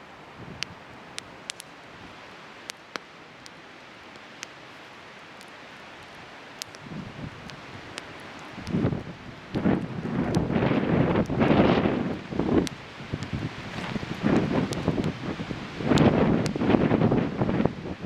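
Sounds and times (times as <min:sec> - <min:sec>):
wind gusting on microphone: 0:00.0 - 0:02.3, 0:06.0 - 0:18.0
fire hissing: 0:00.0 - 0:16.8
bonfire crackling and popping: 0:00.0 - 0:17.5.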